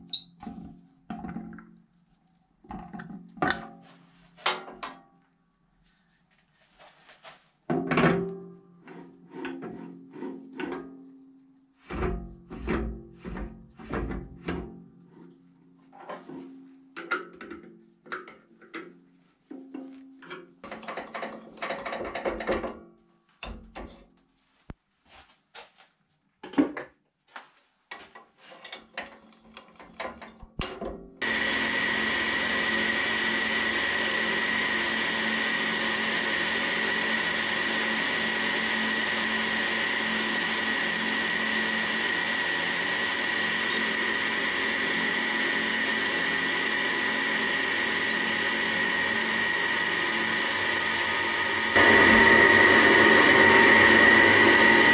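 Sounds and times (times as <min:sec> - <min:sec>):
drill bit boring into wood: 0:31.2 - 0:54.9
wood lathe whining: 0:31.2 - 0:54.9.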